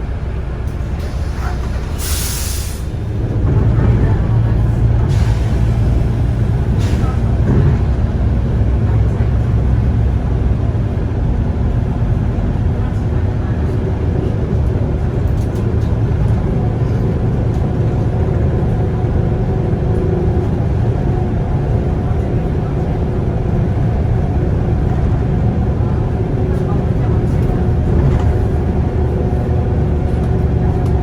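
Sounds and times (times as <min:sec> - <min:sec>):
bus diesel engine rumble: 0:00.0 - 0:31.0.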